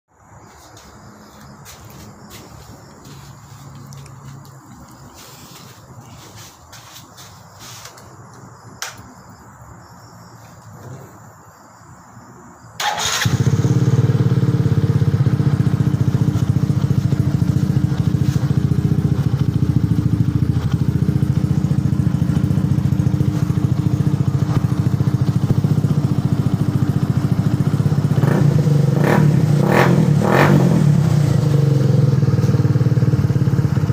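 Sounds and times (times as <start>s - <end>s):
motorcycle engine starting and idling: 12.8s - 33.9s.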